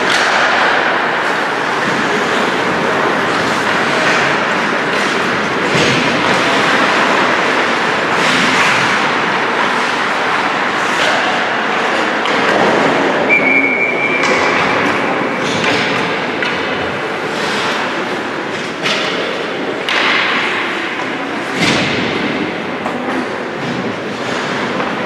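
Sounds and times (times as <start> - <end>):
sticks and puck knocking: 0.0 - 12.9
skates scraping on ice: 0.0 - 13.4, 14.2 - 25.0
whistle blast: 13.3 - 14.7.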